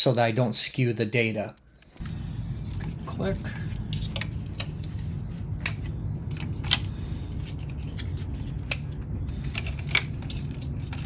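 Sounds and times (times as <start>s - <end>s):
steady low hum: 0.0s - 11.0s
metallic clicks of hand tools: 8.7s - 9.0s.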